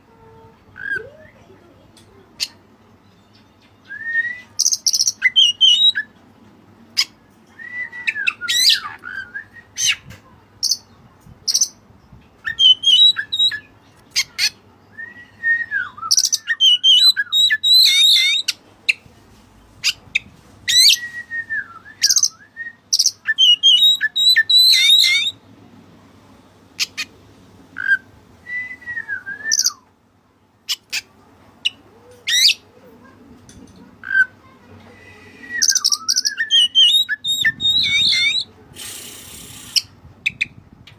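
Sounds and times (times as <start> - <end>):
magpie-robin singing: 2.4 - 6.2, 7.0 - 11.8, 12.4 - 19.0, 21.8 - 25.4, 29.4 - 29.8, 30.7 - 32.6, 35.2 - 38.5, 39.3 - 40.9.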